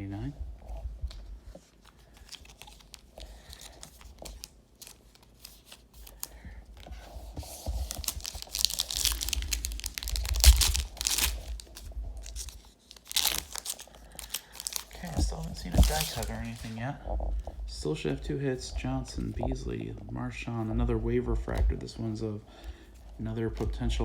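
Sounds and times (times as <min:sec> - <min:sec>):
wrapper tearing and crinkling: 0:02.0 - 0:06.3, 0:07.8 - 0:16.8.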